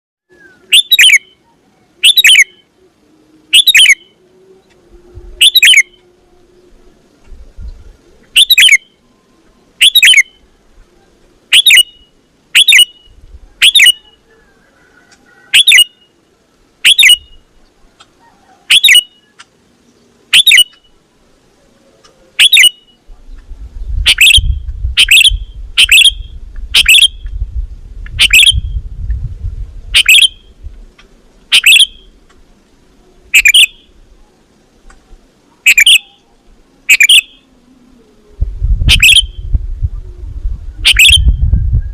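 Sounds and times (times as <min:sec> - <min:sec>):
low rumble: 0:23.1 - 0:30.9, 0:38.1 - 0:41.9.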